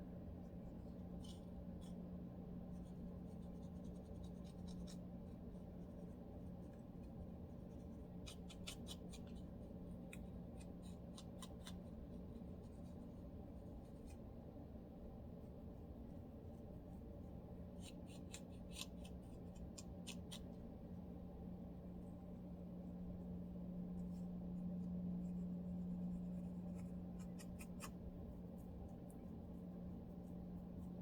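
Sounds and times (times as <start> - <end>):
steady low hum: 0.0 - 31.0
scratching dry scalp: 24.0 - 31.0.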